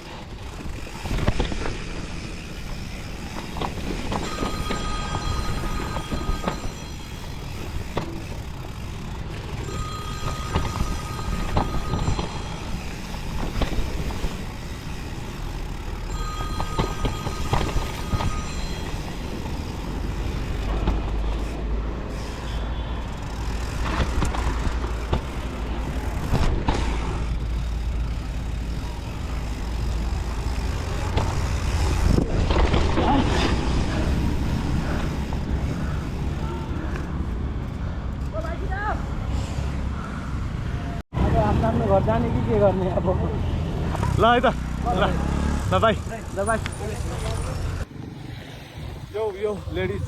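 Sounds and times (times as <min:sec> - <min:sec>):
bike knocks and rattles: 0:00.0 - 0:22.2, 0:23.1 - 0:36.0
bike tyres rolling: 0:00.0 - 0:39.2.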